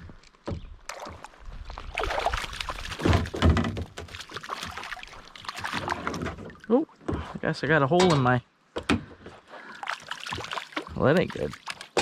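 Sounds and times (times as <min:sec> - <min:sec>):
water splashing: 0:00.8 - 0:07.6, 0:09.6 - 0:12.0
knocks against kayak hull: 0:03.0 - 0:04.2.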